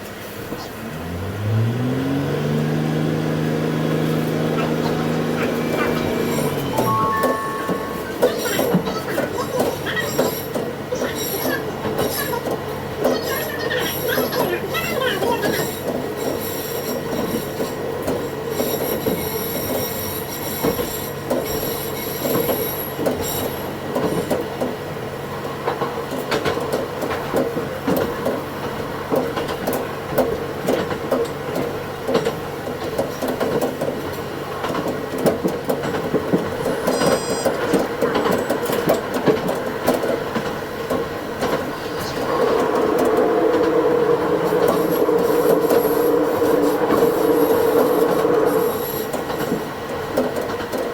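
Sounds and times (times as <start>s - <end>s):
railcar running hum: 0.0s - 50.9s
high wheel squeals: 4.2s - 12.5s, 13.2s - 24.4s, 36.5s - 38.6s, 43.4s - 49.7s.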